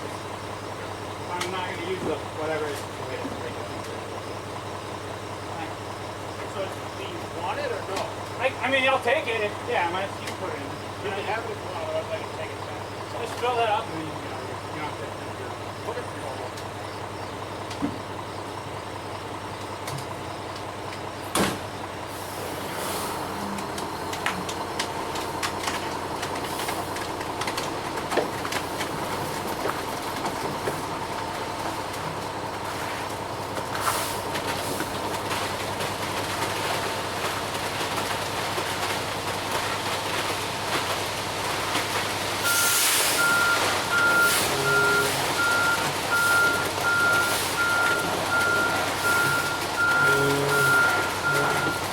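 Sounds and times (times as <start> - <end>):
truck engine running: 0.0 - 51.9
hissing air burst: 22.1 - 23.4, 42.6 - 43.2
reversing alarm beeping: 42.4 - 51.9.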